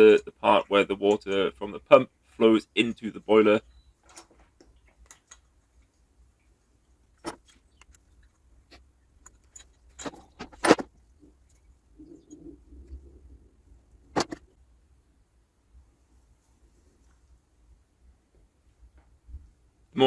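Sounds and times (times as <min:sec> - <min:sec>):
small metal parts clicking: 0:07.2 - 0:11.7.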